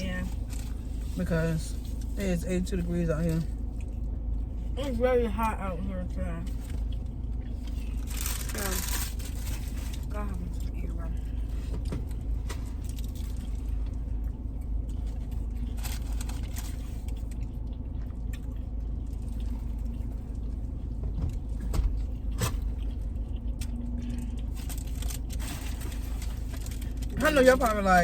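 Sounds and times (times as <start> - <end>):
car air conditioning hum: 0.0 - 28.0
clicks and rustles of eating: 6.5 - 10.7, 11.3 - 27.5.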